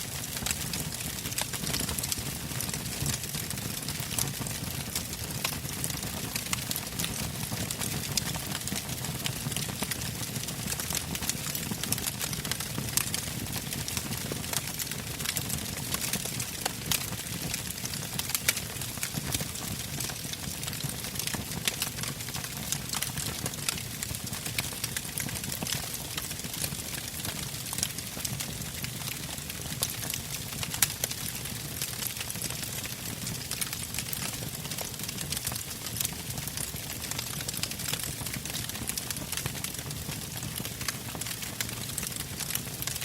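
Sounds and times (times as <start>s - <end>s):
campfire logs crackling: 0.2s - 4.3s, 14.4s - 43.0s.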